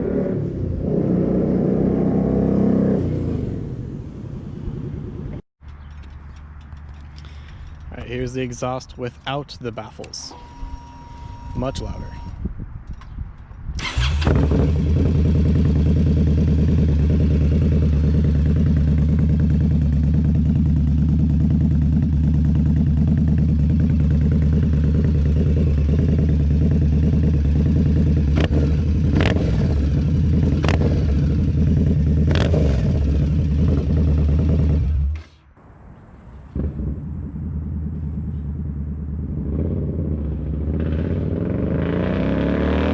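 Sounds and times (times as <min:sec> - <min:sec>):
motorcycle engine running: 0:13.8 - 0:35.3, 0:36.3 - 0:41.9.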